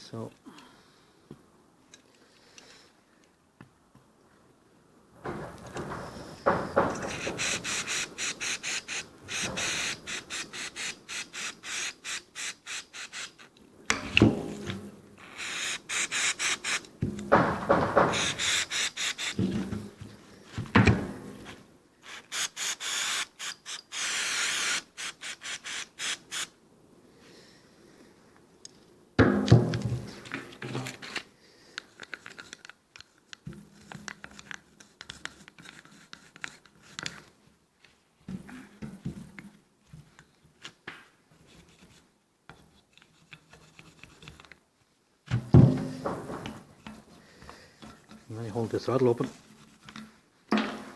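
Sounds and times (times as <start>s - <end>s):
clunk: 5.2s - 7.4s, 17.0s - 18.3s, 50.5s - 50.9s
faint rubbing and scraping: 5.2s - 13.5s, 41.3s - 44.6s, 45.8s - 50.4s
aerosol spray can hissing: 6.8s - 13.5s, 15.2s - 16.9s, 18.1s - 19.4s, 22.0s - 26.5s.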